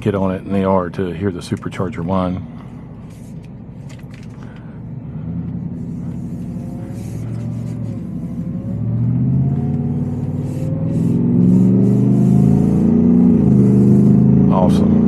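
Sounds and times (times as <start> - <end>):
supercharger whine: 1.6 - 15.0
pickup truck engine accelerating: 3.8 - 15.0.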